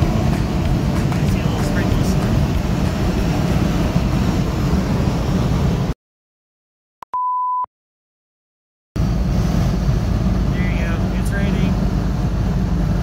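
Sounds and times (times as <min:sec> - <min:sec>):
car cabin road noise: 0:00.0 - 0:05.9, 0:09.0 - 0:13.0
steady beep tone: 0:07.1 - 0:07.7.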